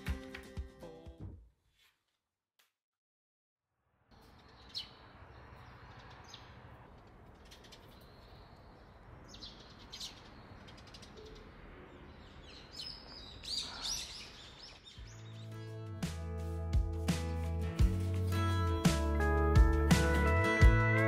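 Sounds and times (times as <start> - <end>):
small birds chirping: 4.1 - 16.0.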